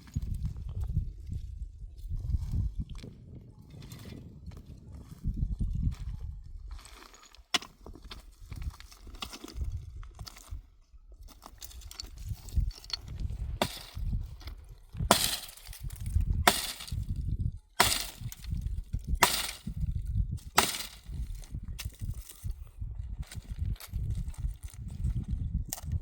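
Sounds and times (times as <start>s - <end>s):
firewood cracking: 11.3s - 17.1s, 17.8s - 19.8s, 20.4s - 21.2s.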